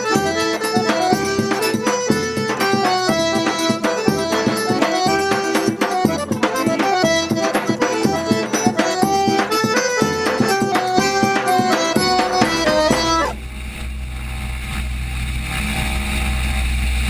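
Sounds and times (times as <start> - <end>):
accordion melody: 0.0 - 13.4
steady drum beat: 0.0 - 13.4.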